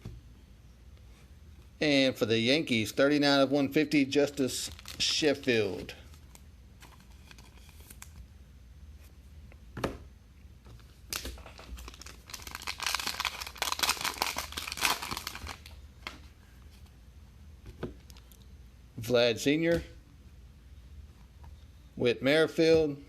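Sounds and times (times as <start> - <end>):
wrapper crinkling and tearing: 4.6 - 8.2, 11.1 - 15.8.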